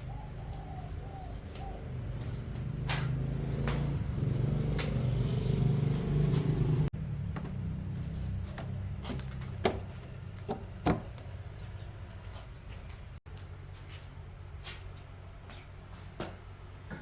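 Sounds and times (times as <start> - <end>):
motor running: 2.2 - 6.9.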